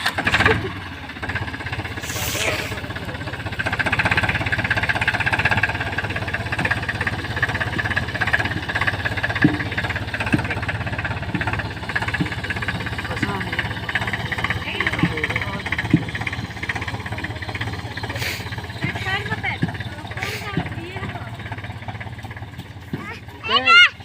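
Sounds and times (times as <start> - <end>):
tractor engine running: 0.0 - 24.0
brief hiss: 2.0 - 2.8.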